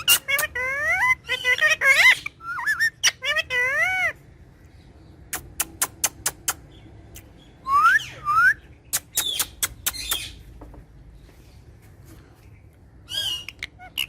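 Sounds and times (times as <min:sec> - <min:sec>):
parrot harsh call: 0:00.0 - 0:04.2.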